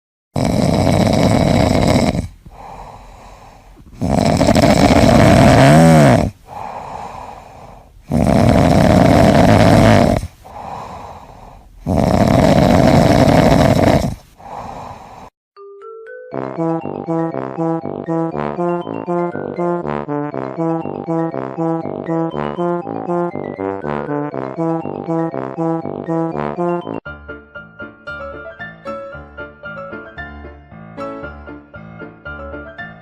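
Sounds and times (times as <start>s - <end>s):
cat snoring: 0.4s - 15.3s
cat breathing: 1.0s - 15.4s.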